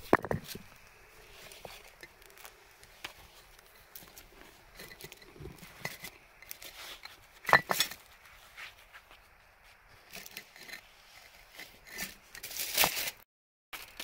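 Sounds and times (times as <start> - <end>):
objects clicking and knocking: 0.0 - 8.2.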